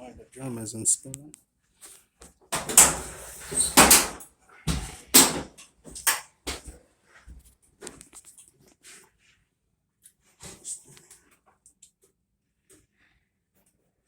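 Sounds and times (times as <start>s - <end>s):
dryer door clunks and knocks: 3.7s - 6.1s.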